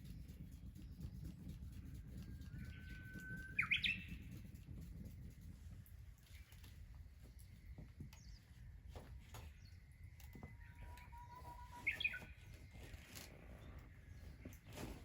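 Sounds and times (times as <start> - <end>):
bird chirping: 0.0 - 4.4, 7.3 - 14.9
rural background noise: 0.0 - 15.0.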